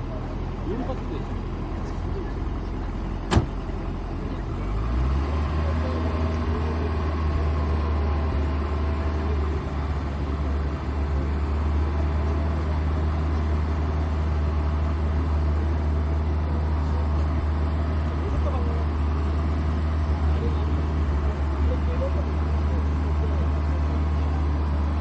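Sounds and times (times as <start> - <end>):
car engine idling: 0.0 - 4.4, 13.6 - 25.0.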